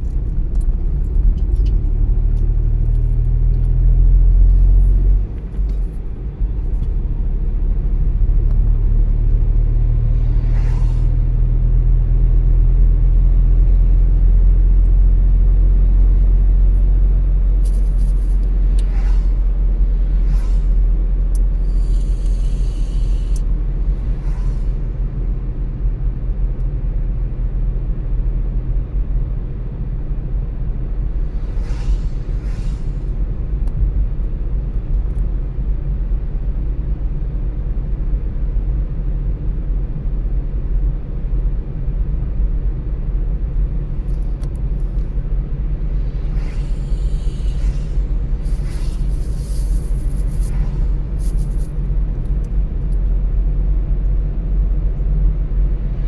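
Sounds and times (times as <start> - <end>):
car tyre and engine rumble: 0.0 - 56.0
brief swishes: 17.6 - 21.0, 31.2 - 33.6, 45.8 - 52.5.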